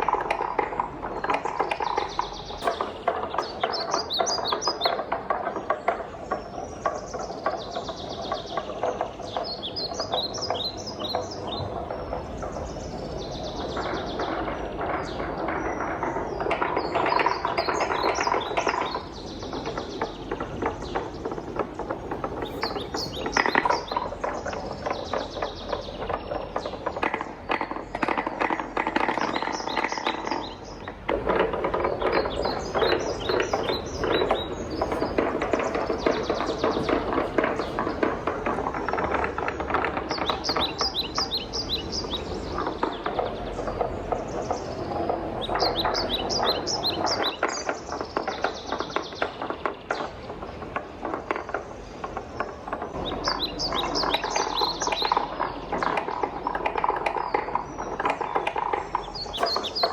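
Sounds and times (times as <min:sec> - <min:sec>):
wooden balls clacking down marble run: 0:00.0 - 0:59.9
high bird-like chirping: 0:22.1 - 0:26.9, 0:58.9 - 0:59.9.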